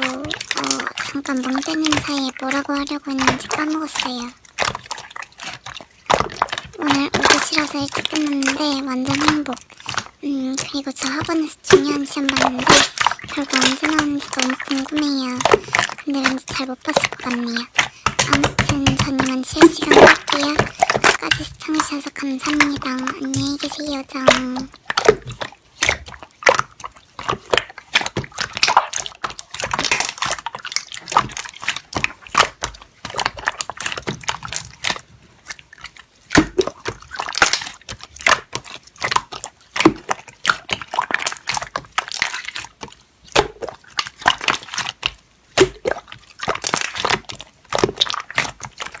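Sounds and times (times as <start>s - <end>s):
slime squelching by hand: 0.0s - 49.0s.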